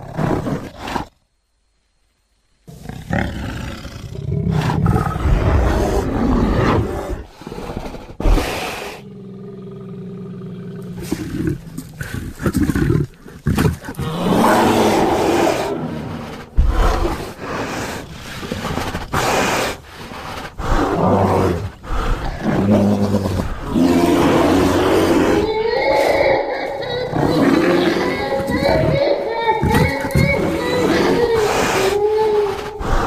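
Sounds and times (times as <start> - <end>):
creature roaring and growling: 3.0 - 11.7, 12.3 - 18.8, 20.6 - 33.0
low steady moan: 19.8 - 33.0.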